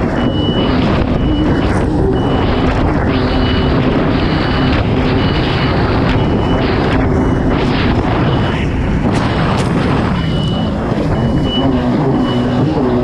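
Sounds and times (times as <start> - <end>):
jet ski engine running: 0.0 - 13.0
rush of wind and water: 0.0 - 13.0
high beep: 0.2 - 8.7, 10.0 - 13.0.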